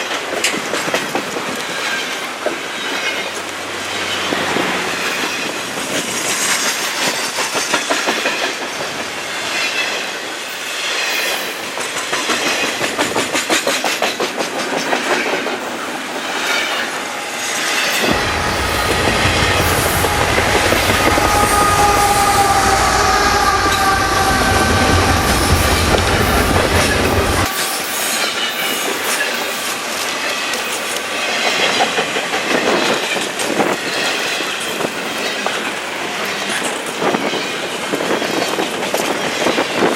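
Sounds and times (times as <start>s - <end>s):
train wheels clacking over rail joints: 0.0s - 10.2s, 10.8s - 39.9s
deep rumble: 18.0s - 27.5s.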